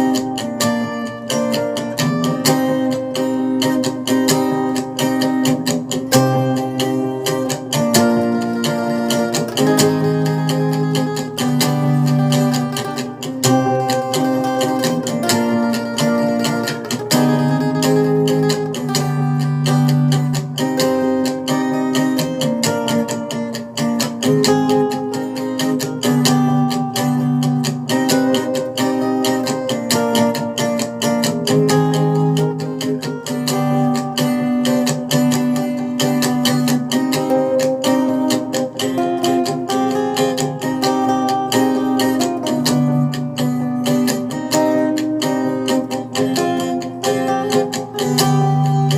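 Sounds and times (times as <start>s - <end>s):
acoustic guitar strumming: 0.0s - 48.9s.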